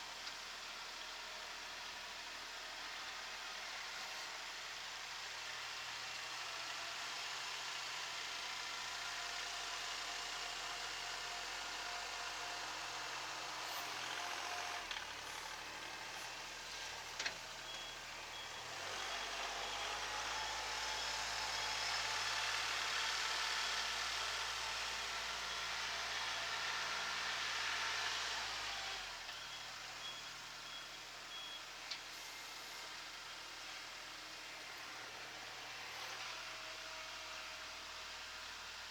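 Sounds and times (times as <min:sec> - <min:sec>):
tractor diesel engine running: 0:12.3 - 0:25.8, 0:30.0 - 0:38.3.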